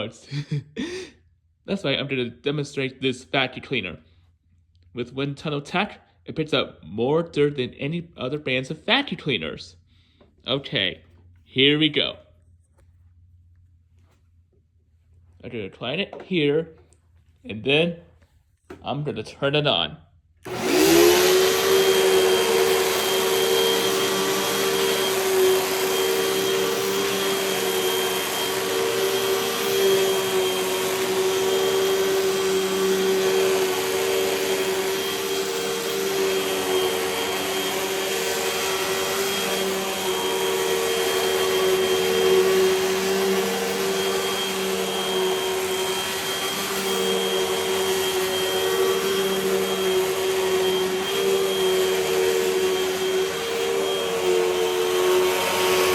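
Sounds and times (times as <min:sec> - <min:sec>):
vacuum cleaner running: 0:20.4 - 0:55.9.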